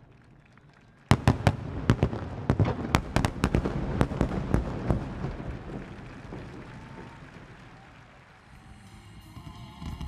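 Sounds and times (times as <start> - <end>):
low rumble and crackle: 0.0 - 8.9
firework shells booming: 1.1 - 7.6.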